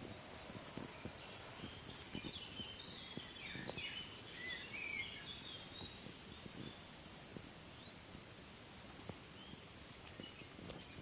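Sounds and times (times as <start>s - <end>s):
rustling of leaves: 0.0s - 11.0s
songbird singing high notes: 1.0s - 6.9s.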